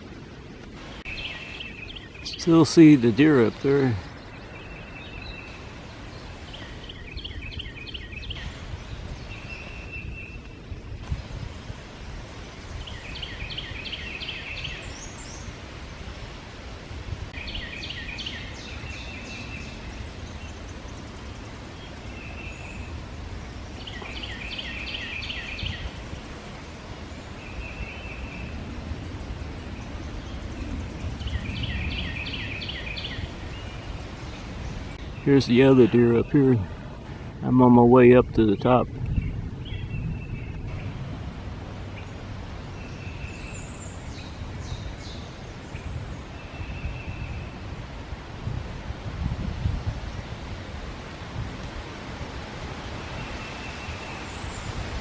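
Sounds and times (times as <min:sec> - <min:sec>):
songbird singing: 0:00.0 - 0:55.0
wind noise: 0:00.0 - 0:55.0.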